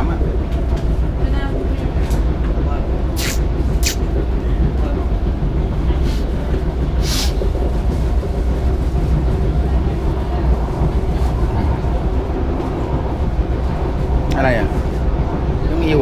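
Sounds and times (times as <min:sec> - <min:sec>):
train rumble inside carriage: 0:00.0 - 0:16.0
brief hisses: 0:03.2 - 0:04.0, 0:07.0 - 0:07.4.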